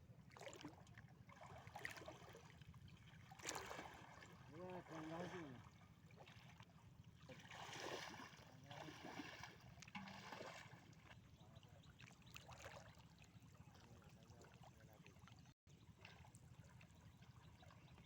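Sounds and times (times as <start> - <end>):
faint river water: 0.0 - 18.0
light splashes and knocks: 7.4 - 11.2.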